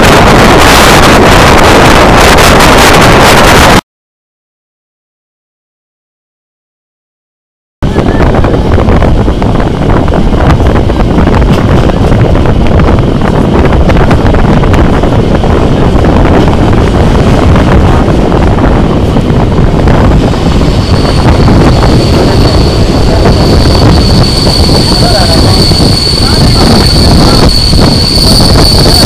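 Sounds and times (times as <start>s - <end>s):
high steady squeal: 0.0s - 3.8s, 19.9s - 29.0s
train rumbling on track: 0.0s - 3.8s, 7.8s - 29.0s
wind buffeting microphone: 0.0s - 3.8s, 7.8s - 29.0s.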